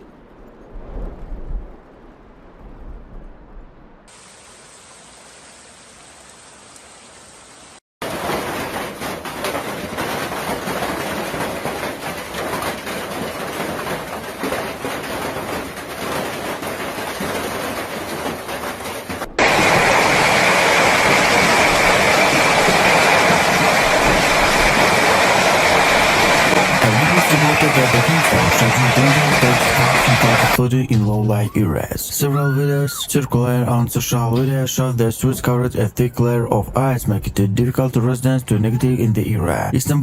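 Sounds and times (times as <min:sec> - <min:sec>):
low thunder rumble: 0:00.0 - 0:04.1
steady hiss: 0:04.1 - 0:07.8, 0:19.4 - 0:30.6
hail pelting hard surfaces: 0:08.0 - 0:30.6
wash of water: 0:19.3 - 0:30.6.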